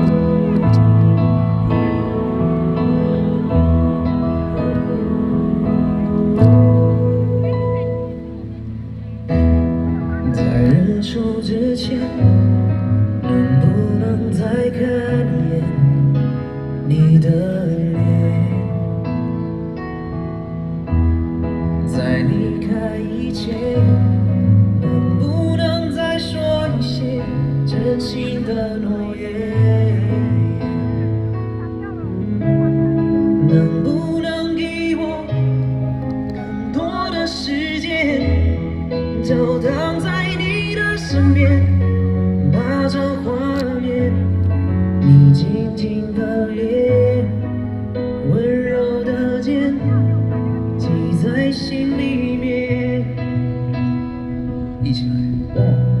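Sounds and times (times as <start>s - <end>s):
man singing: 0.0s - 8.5s, 9.3s - 20.2s, 21.5s - 56.0s
bass line: 0.0s - 20.0s
guitar: 0.0s - 56.0s
live band pop ballad: 0.0s - 56.0s.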